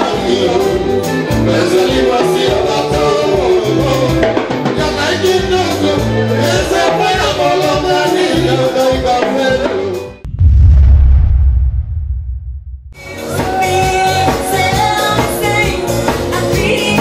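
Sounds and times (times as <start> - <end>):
fusion band music: 0.0 - 10.1, 13.0 - 17.0
loud low rumble: 10.3 - 13.1.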